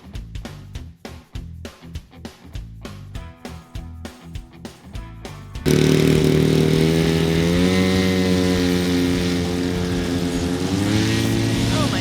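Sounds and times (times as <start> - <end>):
model airplane engine and propeller: 5.6 - 12.0.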